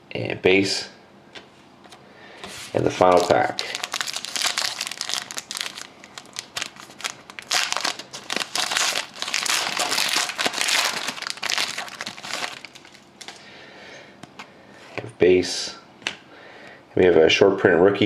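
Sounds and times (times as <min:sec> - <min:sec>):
card pack wrapper crinkling: 0:02.8 - 0:13.4.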